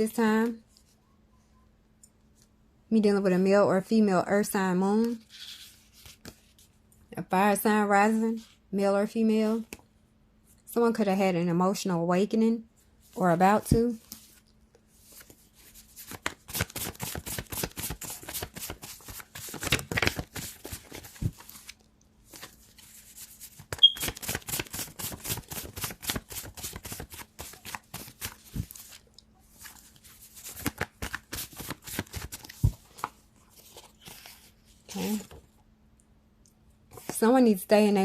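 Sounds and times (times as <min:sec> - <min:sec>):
cards being shuffled: 0:15.1 - 0:29.0, 0:29.6 - 0:35.4.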